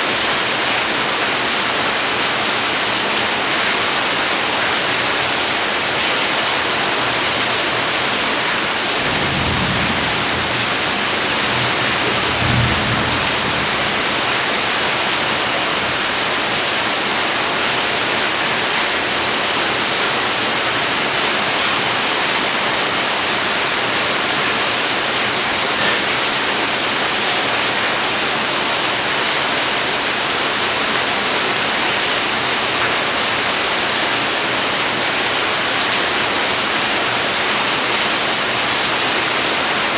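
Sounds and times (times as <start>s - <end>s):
heavy rain: 0.0s - 39.9s
low rumbles: 8.8s - 15.8s.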